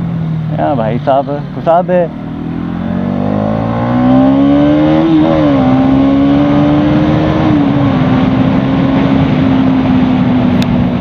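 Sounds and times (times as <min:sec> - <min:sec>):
motorcycle engine accelerating: 0:00.0 - 0:11.0
wind noise: 0:02.4 - 0:11.0.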